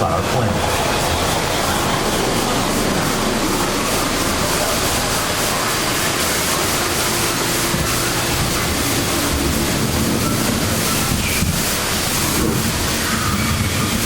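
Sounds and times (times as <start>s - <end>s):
steady rushing water and wind: 0.0s - 14.0s.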